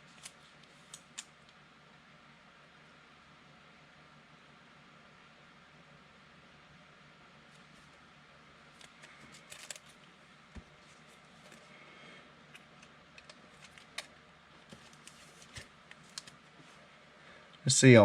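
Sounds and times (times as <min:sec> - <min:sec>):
trading cards clicking and sliding: 0:00.0 - 0:01.3, 0:08.8 - 0:11.7, 0:12.5 - 0:16.7.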